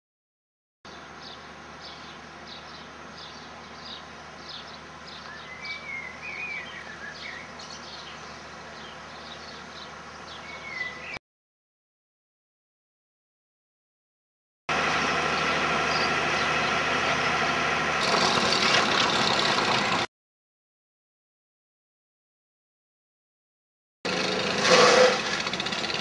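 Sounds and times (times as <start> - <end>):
birds chirping: 0.9 - 11.2, 14.8 - 17.6
bird warbling call: 1.2 - 11.2.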